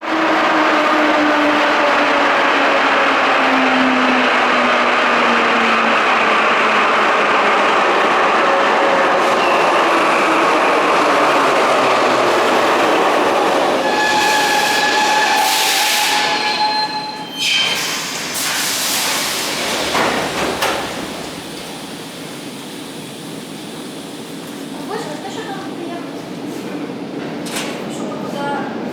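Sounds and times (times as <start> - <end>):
metro train running: 0.0 - 28.9
train brakes squealing: 13.6 - 19.6.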